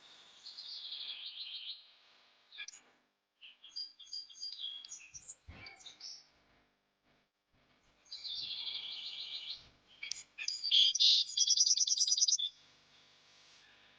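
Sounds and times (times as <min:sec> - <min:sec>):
small birds chirping: 0:00.4 - 0:01.9, 0:02.6 - 0:02.8, 0:03.4 - 0:06.3, 0:08.0 - 0:12.6
bird trills: 0:08.2 - 0:12.6.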